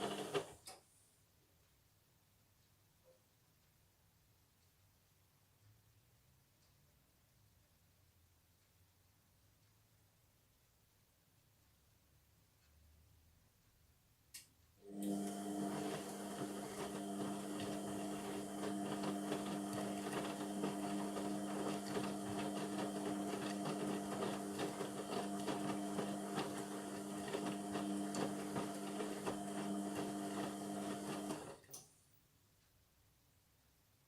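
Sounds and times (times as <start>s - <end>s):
washing machine humming and rattling: 0.0s - 0.5s, 14.9s - 31.7s.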